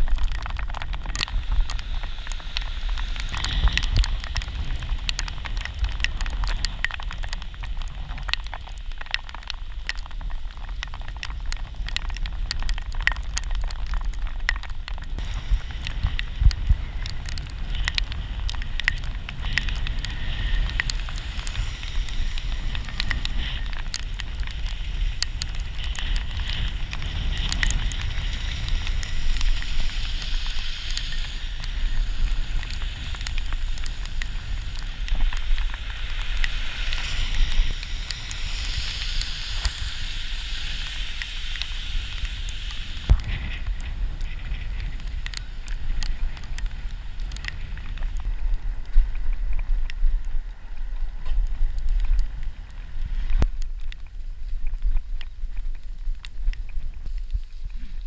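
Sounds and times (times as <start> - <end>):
raindrops crackling on camera: 0.0 - 58.0
wind rumble on microphone: 0.0 - 58.0
hiss of wet road: 1.2 - 8.1, 15.1 - 48.9.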